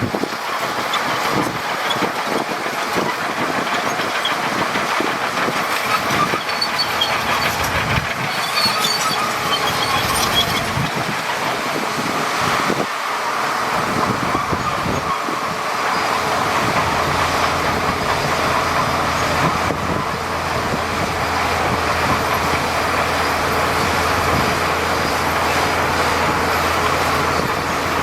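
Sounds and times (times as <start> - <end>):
diesel engine running: 0.0 - 28.0
steel tracks clanking: 0.0 - 28.0
faint high squeals of tracks: 5.7 - 11.0, 14.3 - 16.5.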